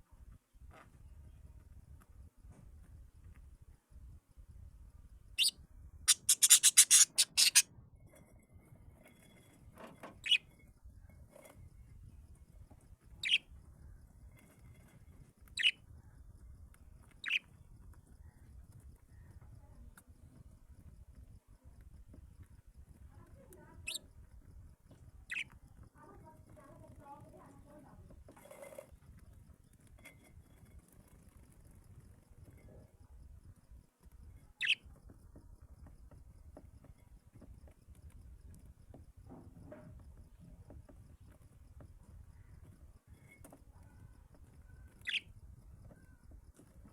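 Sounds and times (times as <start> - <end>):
bird high-pitched calls: 6.1 - 7.6, 10.2 - 10.4, 13.2 - 13.4, 15.6 - 15.8, 17.2 - 17.4, 25.3 - 25.5, 34.6 - 34.8, 45.0 - 45.3
sharp bird call: 6.1 - 7.6.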